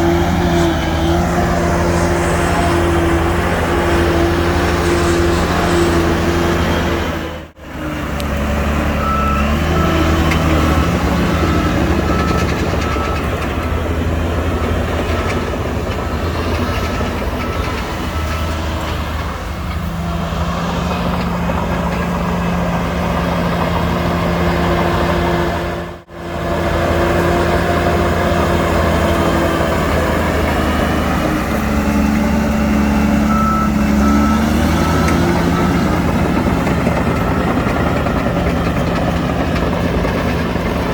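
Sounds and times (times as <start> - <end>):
heavy diesel machinery running: 0.0 - 40.9
reversing alarm beeping: 8.9 - 21.2, 31.3 - 40.6.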